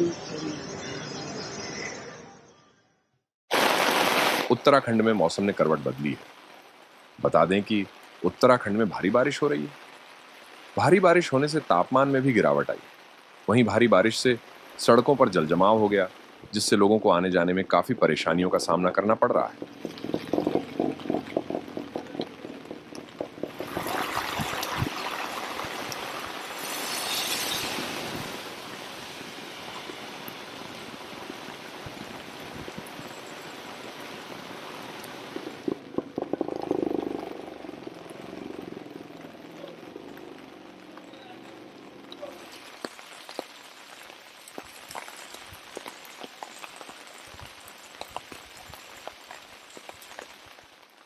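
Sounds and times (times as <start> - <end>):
steady rain hiss: 3.5 - 51.0
rushing water: 7.1 - 51.0
low thumps: 19.0 - 25.4
drops tapping hard surfaces: 19.0 - 26.0, 35.4 - 41.1.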